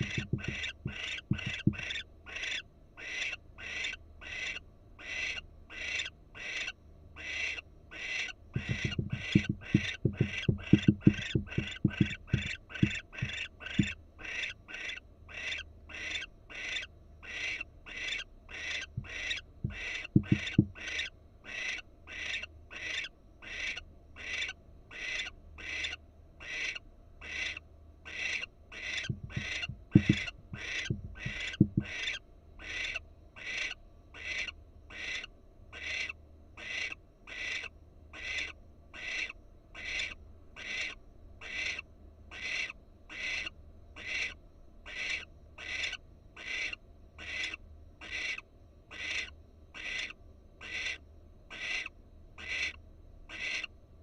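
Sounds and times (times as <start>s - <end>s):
low knocks: 0.0s - 1.9s, 8.6s - 14.0s, 19.0s - 20.8s, 29.0s - 31.9s
barn owl hissing calls: 0.0s - 53.7s.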